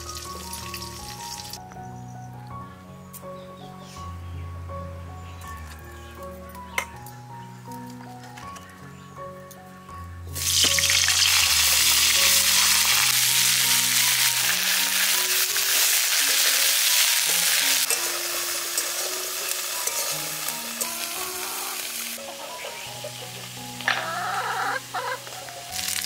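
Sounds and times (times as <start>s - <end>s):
cauliflower sizzling in hot oil: 0.0s - 1.6s, 10.4s - 22.2s, 25.4s - 26.0s.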